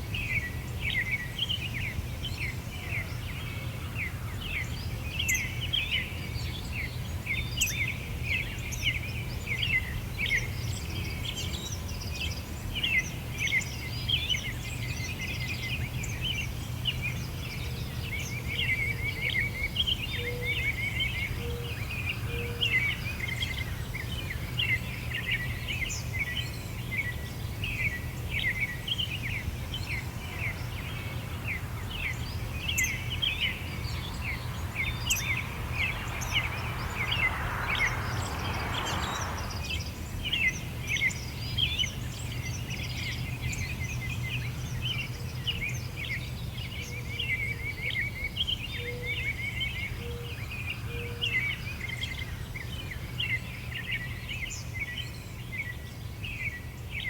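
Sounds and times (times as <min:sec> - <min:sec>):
songbirds chirping and singing: 0:00.2 - 0:57.0
steady low rumble: 0:29.9 - 0:40.6.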